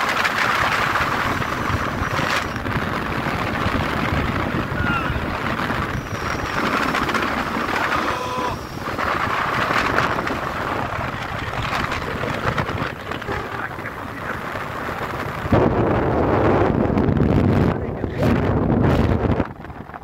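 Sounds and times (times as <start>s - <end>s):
tyre noise: 0.0s - 15.2s
motorcycle engine: 0.0s - 15.5s
wind buffeting microphone: 0.0s - 20.0s.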